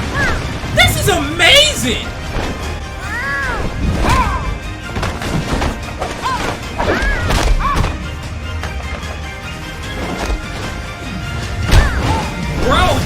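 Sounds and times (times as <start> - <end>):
fight scene music: 0.6 - 2.9.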